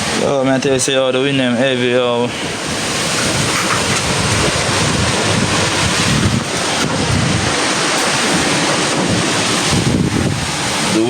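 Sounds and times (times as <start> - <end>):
strong wind buffeting microphone: 0.0 - 11.0.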